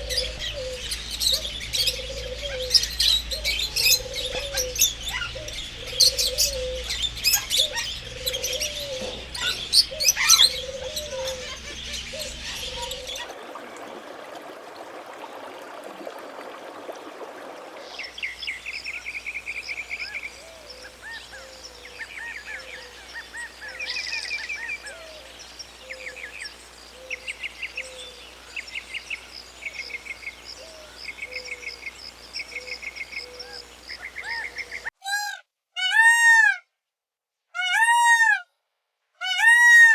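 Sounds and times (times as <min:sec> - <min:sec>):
high bird trills: 0:00.0 - 0:13.3
birds chirping: 0:00.0 - 0:14.5.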